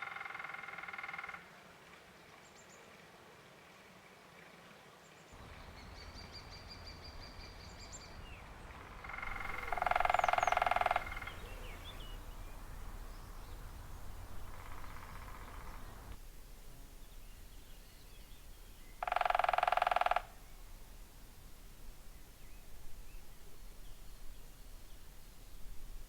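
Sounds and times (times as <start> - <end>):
small birds chirping: 5.4 - 26.0
woodpecker drumming: 8.8 - 26.0.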